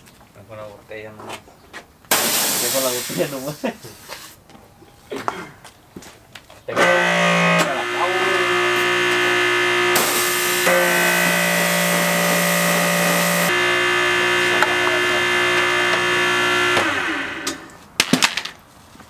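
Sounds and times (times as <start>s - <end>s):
pressure washer motor running: 2.1s - 4.4s, 6.8s - 17.8s
spray hissing: 2.1s - 4.4s, 6.8s - 17.6s.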